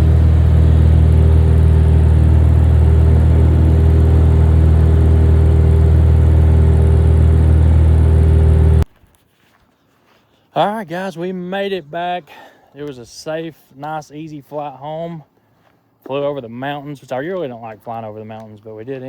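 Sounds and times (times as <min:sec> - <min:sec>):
propeller plane engine drone: 0:00.0 - 0:08.8.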